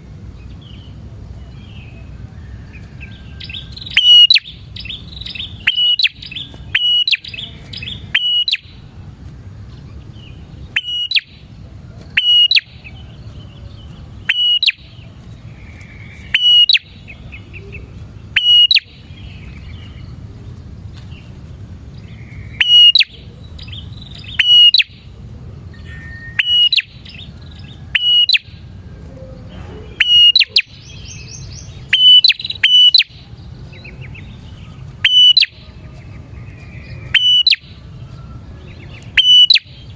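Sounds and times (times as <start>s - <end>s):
low background rumble: 0.0s - 39.9s
bird short sharp high calls: 3.0s - 8.8s, 9.8s - 11.5s, 12.1s - 13.2s, 14.2s - 15.0s, 15.6s - 20.0s, 22.1s - 25.0s, 25.7s - 28.6s, 29.4s - 33.2s, 33.8s - 37.8s, 38.8s - 39.9s.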